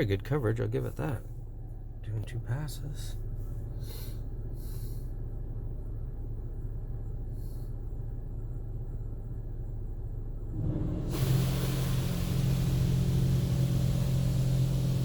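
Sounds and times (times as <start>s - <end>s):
low hum inside vehicle cabin: 0.0s - 15.0s
faint brief hiss: 10.6s - 15.0s.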